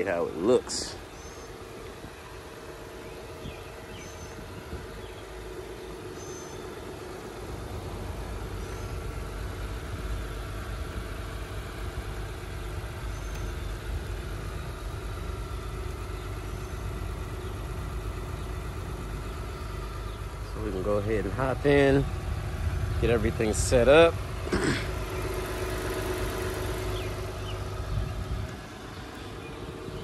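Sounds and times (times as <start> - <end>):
car engine idling: 0.0 - 30.0
low rumble: 6.8 - 30.0.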